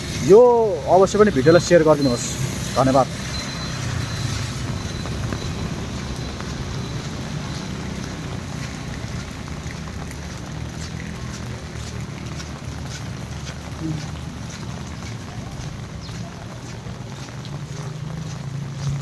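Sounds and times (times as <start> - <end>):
raindrops ticking: 0.0 - 19.0
steady rain: 0.0 - 19.0.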